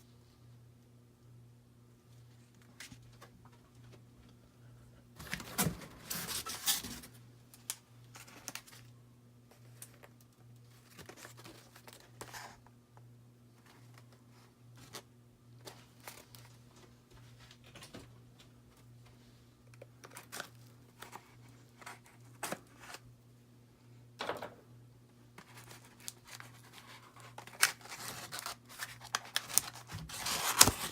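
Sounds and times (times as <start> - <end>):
packing material crinkling: 5.2 - 8.9, 25.4 - 30.9.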